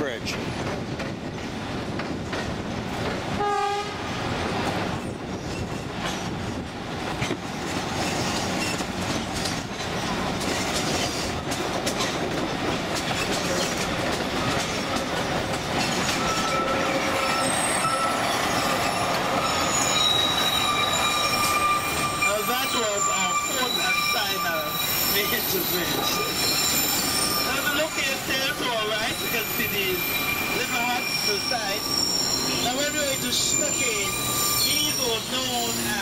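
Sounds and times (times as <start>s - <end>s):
train wheel clatter: 0.0s - 3.5s, 4.1s - 36.0s
train horn blast: 3.4s - 4.1s
thin wheel squeal: 19.4s - 27.8s, 29.0s - 36.0s.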